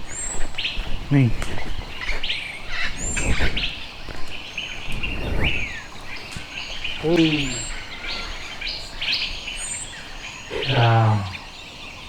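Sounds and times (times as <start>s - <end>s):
birds chirping: 0.0s - 12.0s
short low bird call: 5.0s - 9.0s.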